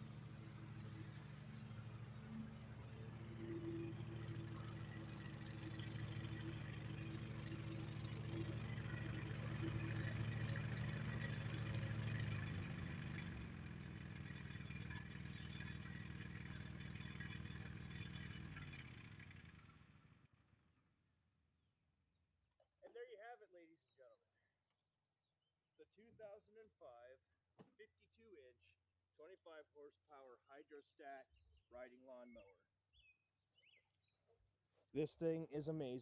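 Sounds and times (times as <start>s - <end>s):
riding lawnmower engine running: 0.0s - 20.3s.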